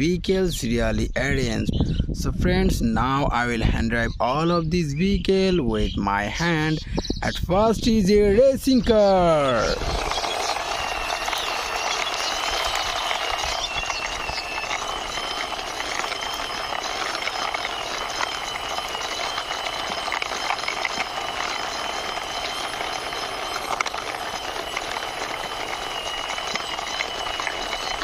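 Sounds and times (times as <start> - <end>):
toy car wheels rolling and clicking: 9.0 - 28.0
high-pitched whine: 9.1 - 28.0.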